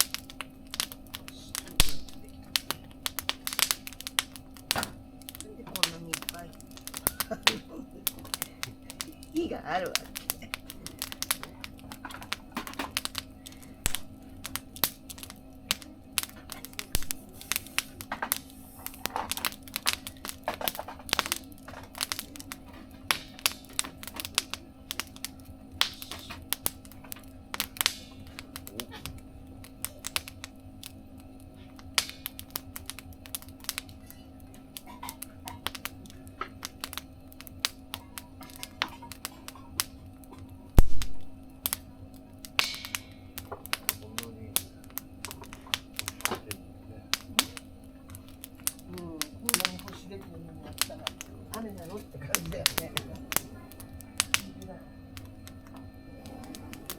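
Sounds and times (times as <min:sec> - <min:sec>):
faint steady hum: 0:00.0 - 0:56.9
wood fire crackling: 0:00.0 - 0:56.9.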